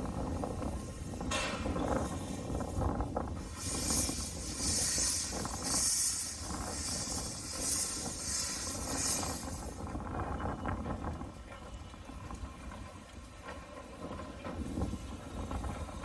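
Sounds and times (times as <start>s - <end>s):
steam locomotive rumble: 0.0s - 16.0s
loud steam hissing: 0.2s - 9.8s.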